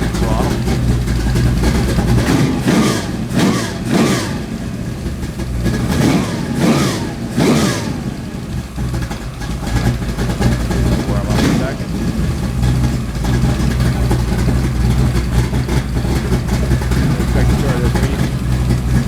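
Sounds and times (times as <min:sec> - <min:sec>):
car engine revving and idling: 0:00.0 - 0:19.0.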